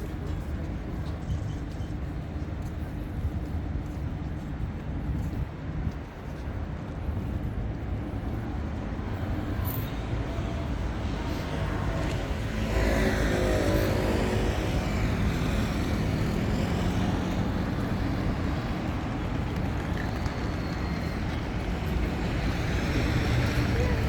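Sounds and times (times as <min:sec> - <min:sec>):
steady low traffic hum: 0:00.0 - 0:24.0
cars driving past: 0:10.6 - 0:24.0.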